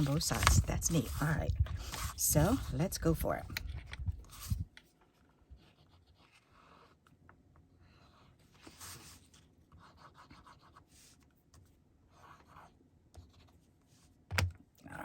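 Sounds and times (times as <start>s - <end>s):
paper strips rustling and scraping: 0.0s - 2.8s.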